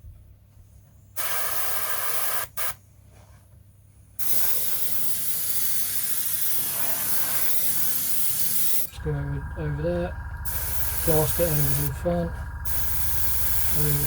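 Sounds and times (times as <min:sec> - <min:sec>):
airbrush spraying: 0:01.2 - 0:02.8, 0:04.2 - 0:08.9, 0:12.6 - 0:14.0.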